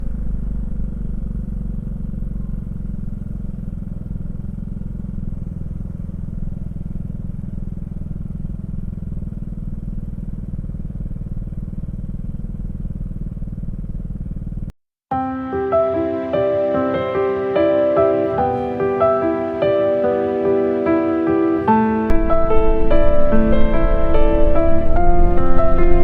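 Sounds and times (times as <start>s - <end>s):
scooter engine running: 0.0s - 14.8s, 21.5s - 26.0s.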